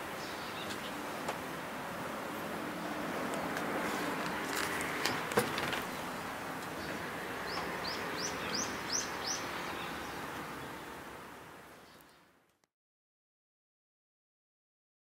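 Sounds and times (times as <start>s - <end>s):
outdoor background hiss: 0.0s - 12.6s
bird chirping: 5.9s - 10.8s.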